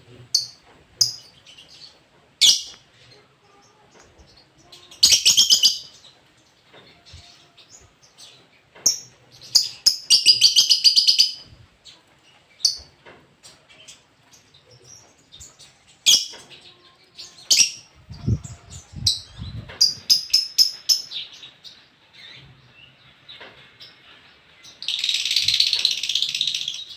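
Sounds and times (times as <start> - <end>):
bird chirping and trilling: 0.3 - 2.8, 3.5 - 12.0, 13.6 - 23.0, 24.7 - 26.9.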